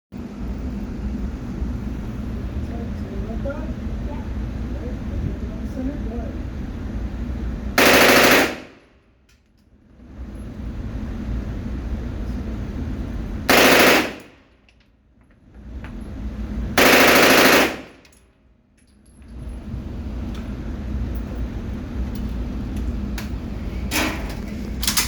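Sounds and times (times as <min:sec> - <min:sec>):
steady low rumble: 0:00.2 - 0:25.0
machine gun bursts: 0:07.8 - 0:08.8, 0:13.5 - 0:14.3, 0:16.8 - 0:18.0.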